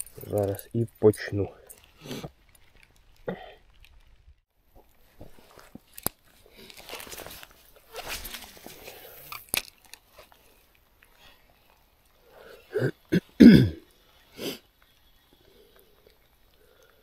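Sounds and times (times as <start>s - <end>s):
man clearing throat and coughing: 12.7s - 13.8s.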